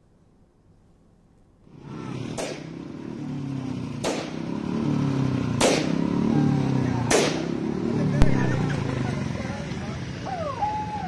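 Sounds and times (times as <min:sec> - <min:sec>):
car engine accelerating: 0:01.6 - 0:11.0
sharp cracks: 0:01.8 - 0:03.0, 0:03.9 - 0:04.9, 0:05.5 - 0:06.2, 0:07.0 - 0:09.2.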